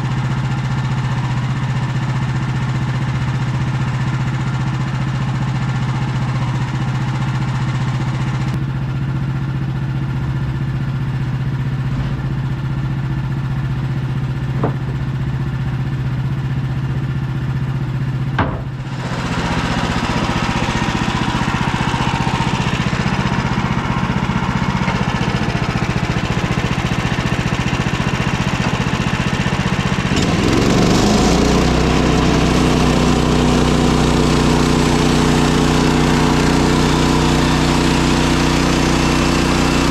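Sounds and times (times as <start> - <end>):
sawmill gasoline engine running: 0.0 - 39.9
brief knocks: 14.5 - 15.0, 18.4 - 18.9.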